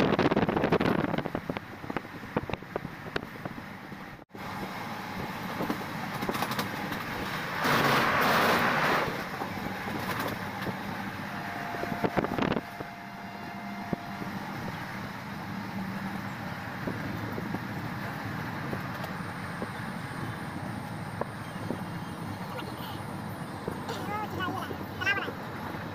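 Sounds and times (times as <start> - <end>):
train coaches rumbling: 0.0 - 25.9
rush of noise: 4.4 - 15.6
wheels clicking on rails: 4.5 - 25.9.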